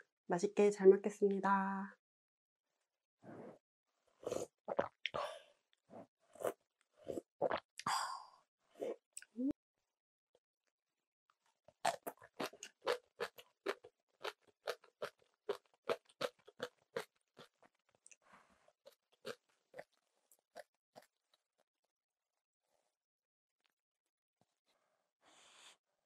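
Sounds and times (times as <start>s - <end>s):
crunchy chewing of cabbage: 11.8s - 18.0s, 18.8s - 21.2s.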